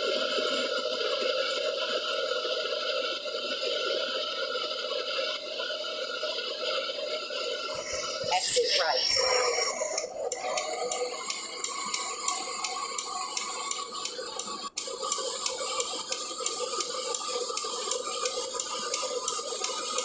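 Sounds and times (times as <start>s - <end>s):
turn indicator ticking: 9.9s - 20.0s.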